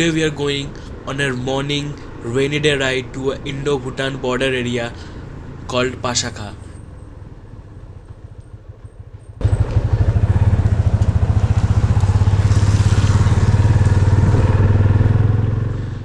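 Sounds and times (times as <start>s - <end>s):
motorcycle engine running: 7.5s - 16.0s.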